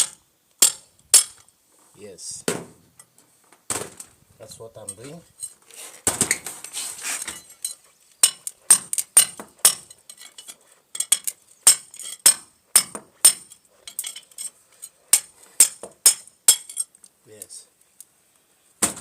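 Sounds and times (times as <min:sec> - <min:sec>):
hammer striking steel chisel: 0:00.0 - 0:01.4, 0:08.2 - 0:10.0, 0:11.0 - 0:14.1, 0:15.1 - 0:16.8.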